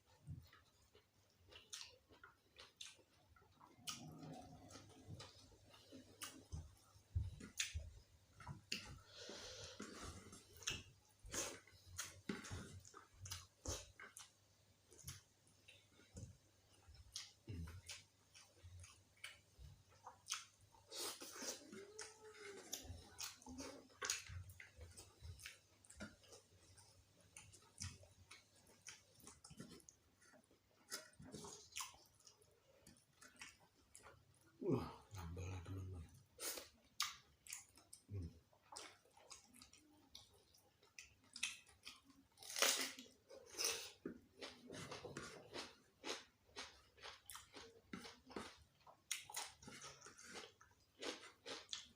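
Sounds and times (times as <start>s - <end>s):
wet chewing: 0.1s - 34.5s, 36.4s - 51.9s
food crunching: 0.4s - 7.8s, 36.4s - 51.9s.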